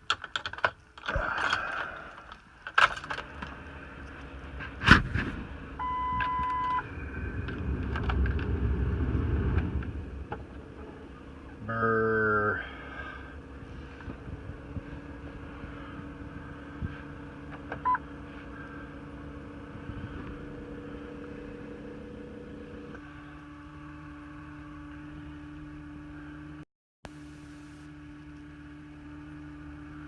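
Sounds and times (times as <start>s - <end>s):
steady low hum: 1.0s - 30.0s
short beep: 5.8s - 6.9s.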